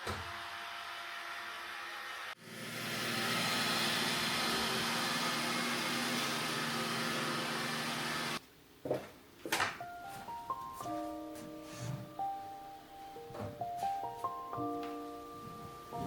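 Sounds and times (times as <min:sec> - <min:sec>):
appliance motor humming: 0:00.0 - 0:08.4.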